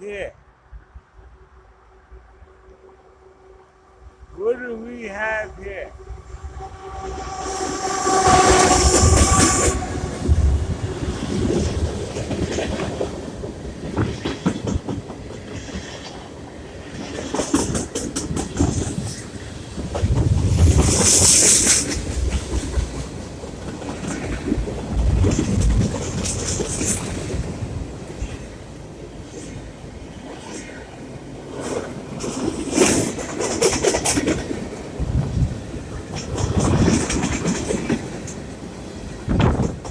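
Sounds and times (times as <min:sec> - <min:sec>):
train horn: 0:01.9 - 0:12.4
train wheels clattering over rail joints: 0:31.6 - 0:39.9.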